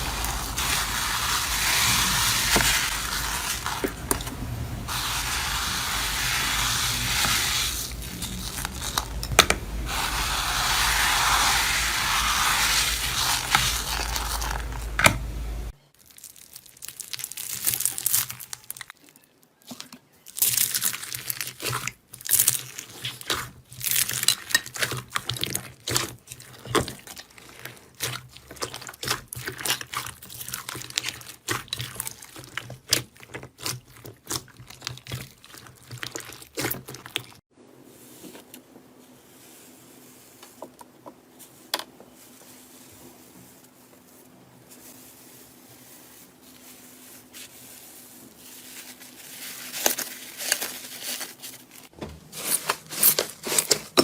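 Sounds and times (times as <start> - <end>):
steady hiss: 0.0 - 15.8
crunchy material being crushed: 0.0 - 37.4, 44.7 - 54.0.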